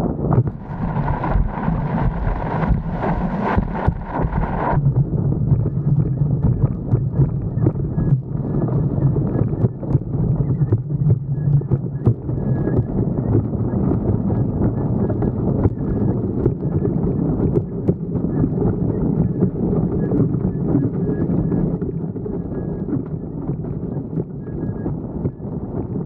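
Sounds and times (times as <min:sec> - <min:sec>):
wind buffeting microphone: 0:00.0 - 0:26.0
board rushing over water: 0:00.4 - 0:04.8.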